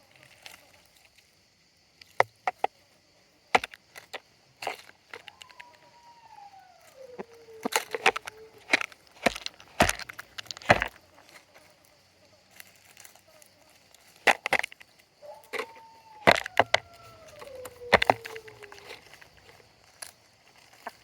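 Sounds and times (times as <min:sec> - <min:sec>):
chickens pecking taps: 0:03.5 - 0:06.3, 0:06.9 - 0:11.4, 0:13.8 - 0:21.0
chicken call falling in pitch: 0:05.1 - 0:08.9, 0:15.2 - 0:19.6.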